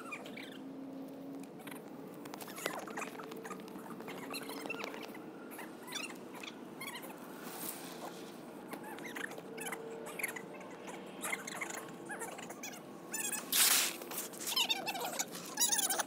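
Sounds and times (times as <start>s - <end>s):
small birds chirping: 0.0s - 0.7s, 1.6s - 7.1s
faint steady hum: 0.0s - 16.0s.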